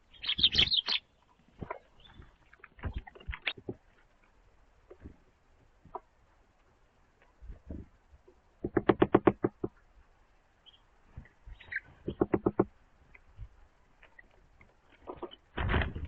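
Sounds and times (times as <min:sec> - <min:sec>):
faint bird chirps: 0:00.0 - 0:03.6, 0:10.6 - 0:12.4
bird tapping beak on wood: 0:08.6 - 0:09.8, 0:12.0 - 0:12.7.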